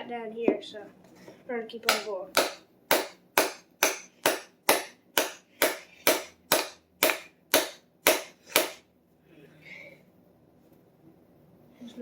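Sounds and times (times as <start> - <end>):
hammer striking wedge: 1.9 - 8.8.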